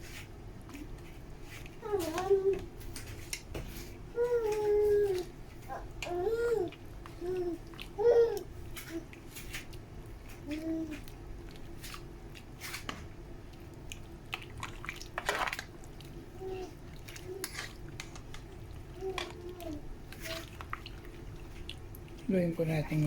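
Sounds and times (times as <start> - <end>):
small child babbling: 1.8 - 2.7, 4.2 - 9.0, 10.4 - 11.0, 16.4 - 17.5, 19.0 - 20.5.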